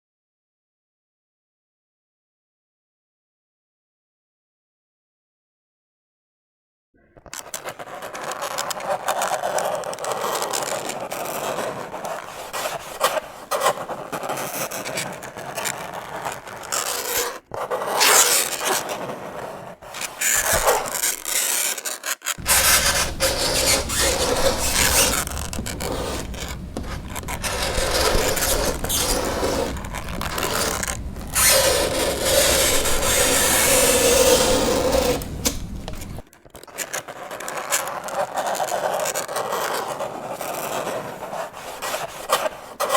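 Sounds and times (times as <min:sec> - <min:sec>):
fingernails scraping chalkboard: 0:07.3 - 0:42.9.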